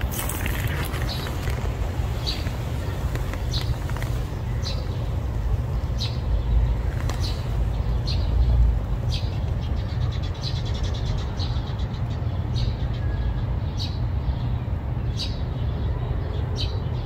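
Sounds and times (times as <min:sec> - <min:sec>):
low outdoor rumble: 0:00.0 - 0:12.5
small birds chirping: 0:00.0 - 0:17.0.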